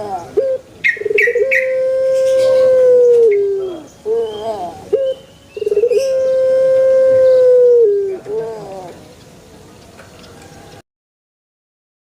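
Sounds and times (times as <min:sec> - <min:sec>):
dove cooing: 0:00.0 - 0:09.1.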